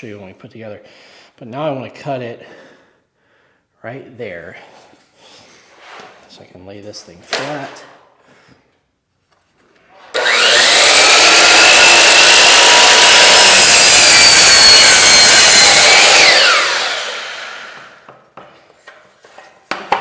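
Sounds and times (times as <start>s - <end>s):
miter saw cutting wood: 10.1s - 18.1s
saw blade winding down: 10.1s - 18.1s.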